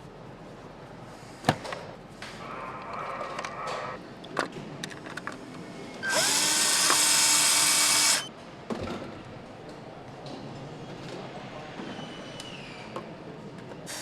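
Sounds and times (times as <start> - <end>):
power tool whining: 6.0 - 8.3.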